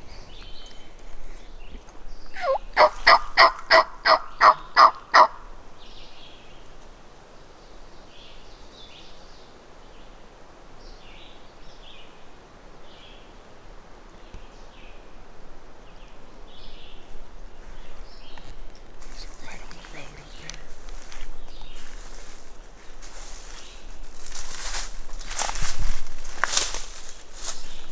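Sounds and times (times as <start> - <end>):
faint songbird chirps: 0.0 - 13.5, 15.8 - 27.9
turkey yelps: 2.4 - 5.5.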